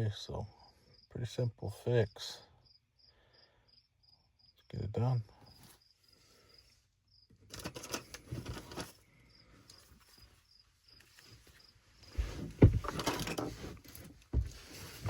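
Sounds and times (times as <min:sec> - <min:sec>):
crickets chirping: 0:00.2 - 0:13.4
handling tools and pipe fittings: 0:07.5 - 0:09.0, 0:12.1 - 0:15.0.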